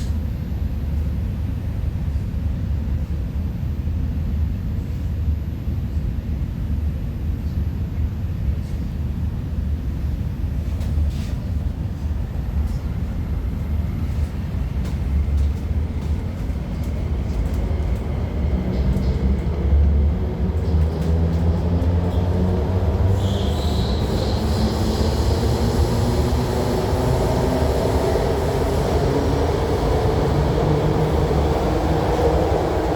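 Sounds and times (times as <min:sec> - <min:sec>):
train wheels rumbling on track: 0:10.6 - 0:32.9.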